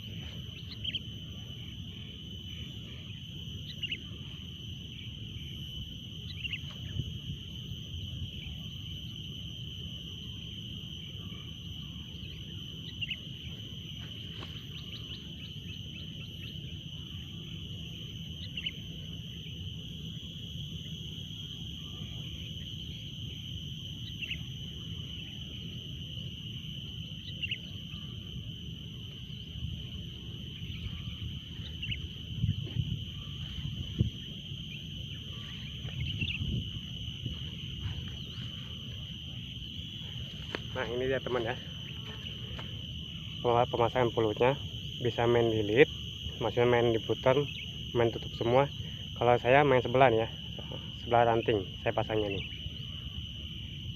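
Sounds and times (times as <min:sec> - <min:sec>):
high-pitched insect drone: 0:00.0 - 0:53.9
bird chirps: 0:00.4 - 0:01.1.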